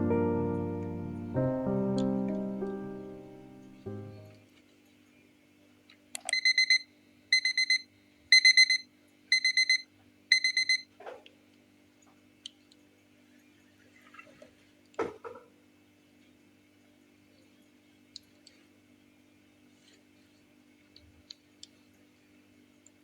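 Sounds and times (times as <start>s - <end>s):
electronic alarm beeping: 6.3s - 10.8s.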